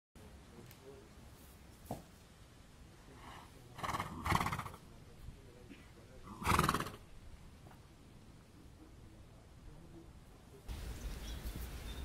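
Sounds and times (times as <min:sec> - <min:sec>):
horse vocalizing: 0:03.7 - 0:04.9, 0:06.2 - 0:07.1.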